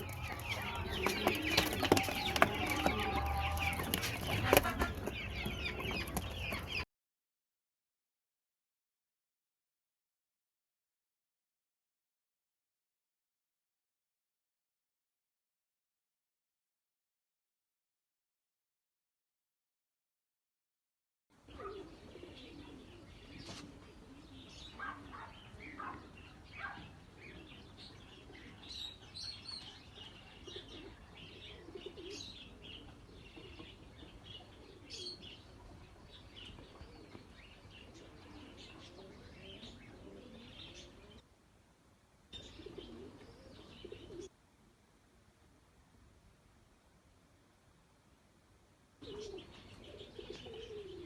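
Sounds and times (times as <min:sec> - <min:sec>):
pigeons cooing: 0:00.0 - 0:06.8, 0:21.5 - 0:41.2, 0:42.4 - 0:44.3, 0:49.0 - 0:51.0
birds chirping: 0:00.0 - 0:06.9, 0:21.5 - 0:41.2, 0:42.3 - 0:44.3, 0:49.0 - 0:51.0.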